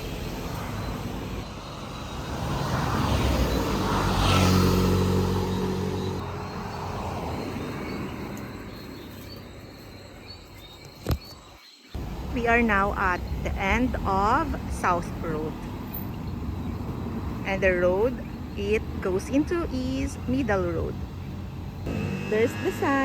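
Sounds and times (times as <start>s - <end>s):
car driving past: 0.0s - 9.5s.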